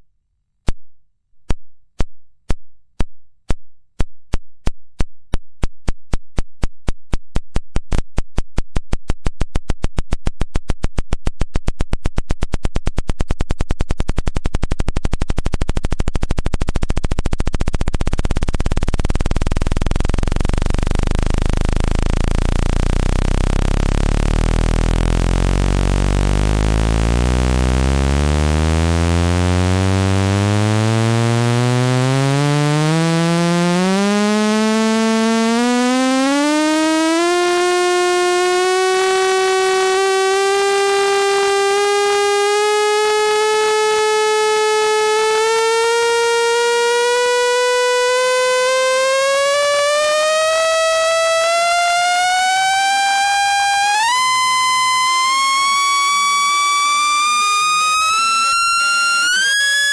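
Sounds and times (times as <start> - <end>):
buzzy electronic tone rising in pitch: 12.8 - 59.9.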